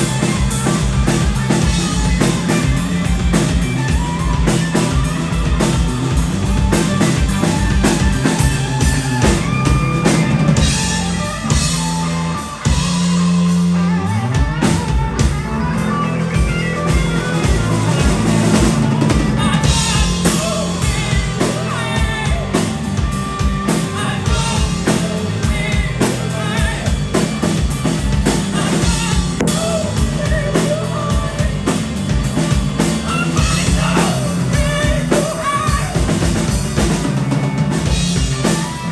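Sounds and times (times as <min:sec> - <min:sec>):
live rock band: 0:00.0 - 0:38.9
rising bass slide: 0:00.0 - 0:38.9
person singing: 0:14.0 - 0:27.5, 0:28.2 - 0:37.1.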